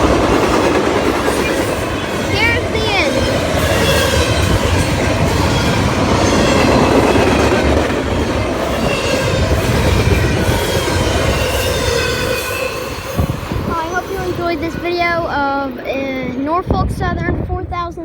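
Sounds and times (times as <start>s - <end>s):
train wheels rumbling on rail: 0.0s - 17.6s
high wheel squeals: 8.1s - 15.3s.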